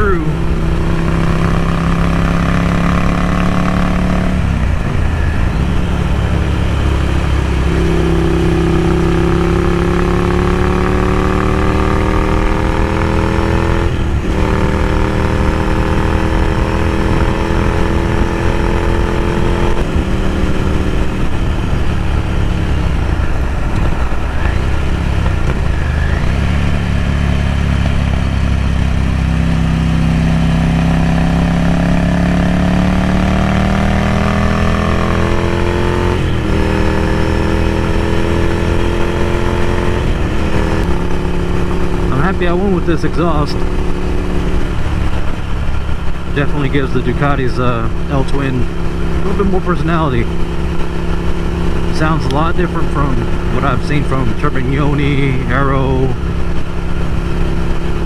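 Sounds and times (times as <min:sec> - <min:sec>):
motorcycle engine riding: 0:00.0 - 0:58.0.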